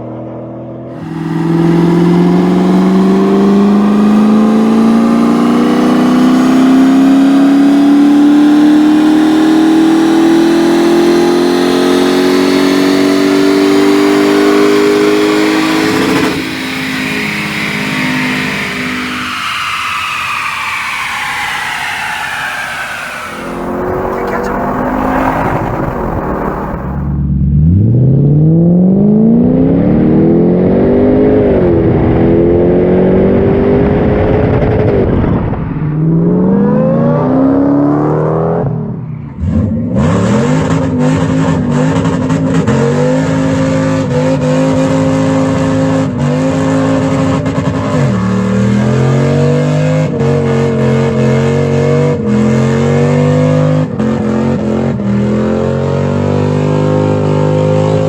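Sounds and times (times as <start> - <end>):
engine revving hard: 0.9 - 35.2.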